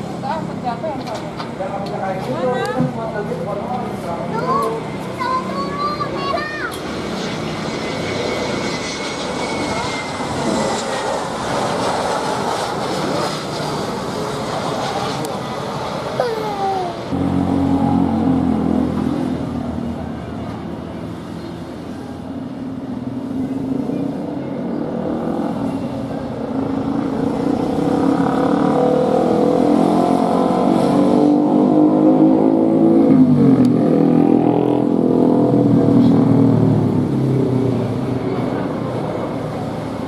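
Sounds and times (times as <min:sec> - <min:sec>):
plane engines passing: 0:00.0 - 0:40.0.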